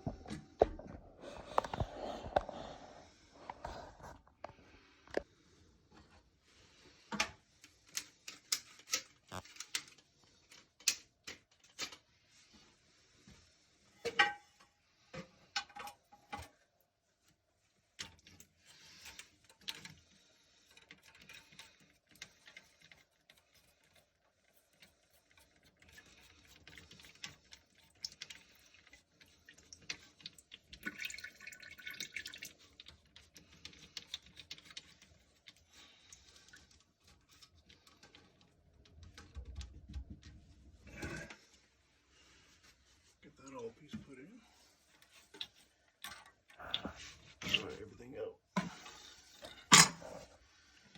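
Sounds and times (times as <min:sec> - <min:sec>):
plastic toilet tank parts clicking: 0:07.1 - 0:12.0, 0:14.1 - 0:16.6, 0:49.4 - 0:50.2
water dripping and trickling: 0:20.6 - 0:38.2.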